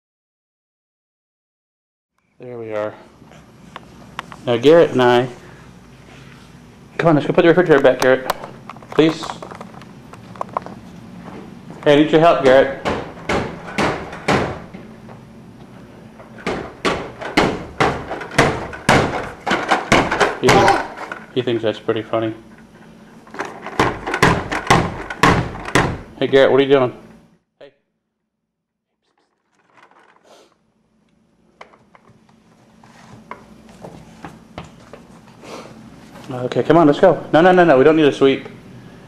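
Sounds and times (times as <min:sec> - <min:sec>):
child banging on something hard: 0:16.4 - 0:21.1.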